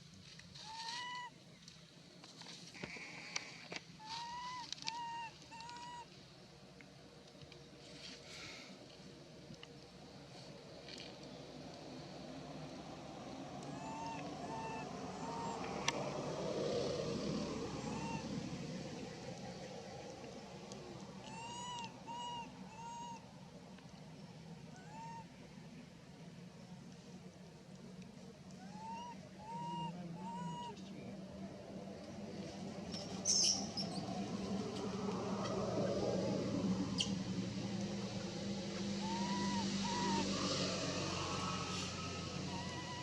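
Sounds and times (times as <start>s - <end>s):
short high arched calls: 39.0s - 40.3s
baby monkey crying: 42.5s - 43.0s.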